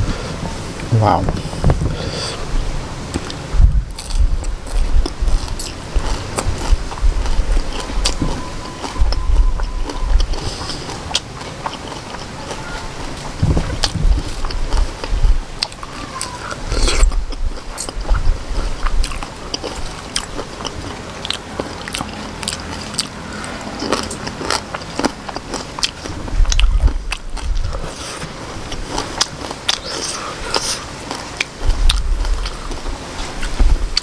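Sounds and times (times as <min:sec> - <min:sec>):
low thuds: 0:00.0 - 0:10.4, 0:13.3 - 0:15.5
chewing and biting food: 0:03.1 - 0:34.0.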